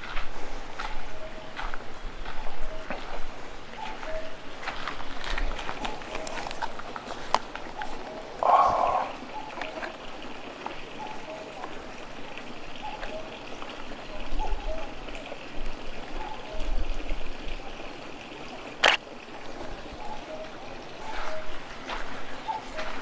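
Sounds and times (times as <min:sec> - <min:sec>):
trickle of flowing water: 0:00.0 - 0:23.0
frogs calling: 0:00.1 - 0:16.9, 0:17.5 - 0:23.0
sharp click: 0:18.8 - 0:19.0.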